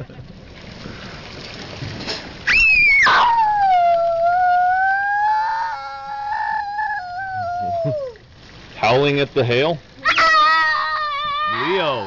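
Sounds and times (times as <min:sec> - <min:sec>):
dog howling: 0:02.5 - 0:08.2, 0:10.0 - 0:12.0.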